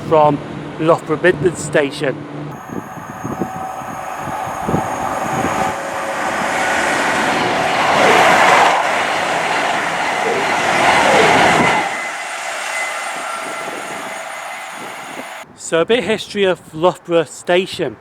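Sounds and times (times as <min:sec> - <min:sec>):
diesel train passing: 0:00.4 - 0:15.4
brief falling tones: 0:02.5 - 0:15.4.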